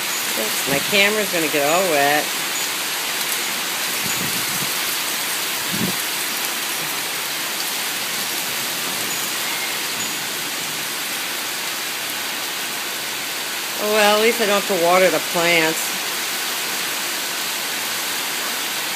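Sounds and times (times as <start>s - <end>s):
steady rain: 0.0s - 18.9s.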